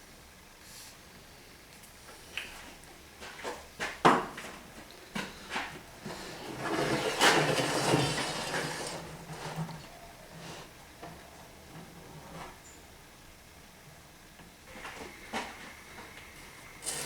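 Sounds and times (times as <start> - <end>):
scraping or sliding: 6.0 - 9.8.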